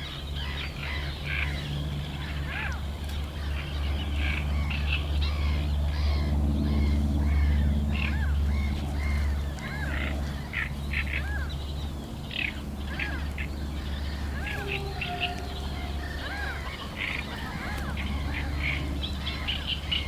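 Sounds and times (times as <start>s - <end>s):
birds chirping: 11.5s - 20.0s
steady low hum: 11.9s - 20.0s.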